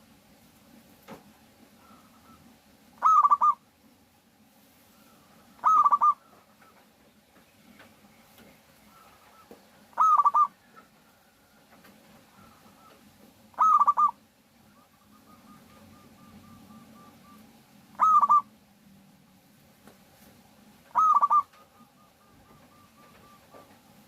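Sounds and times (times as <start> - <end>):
dove cooing: 1.8 - 3.6, 5.0 - 6.8, 8.8 - 18.6, 20.8 - 24.0.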